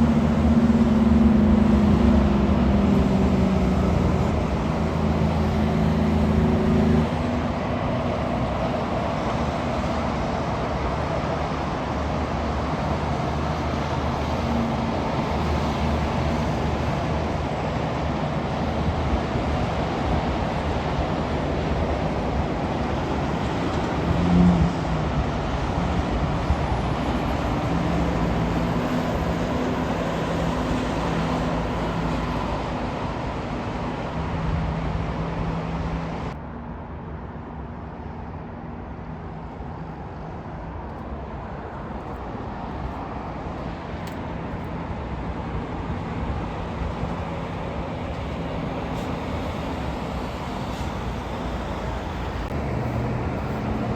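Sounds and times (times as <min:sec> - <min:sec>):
trucks driving past: 0:00.0 - 0:53.9.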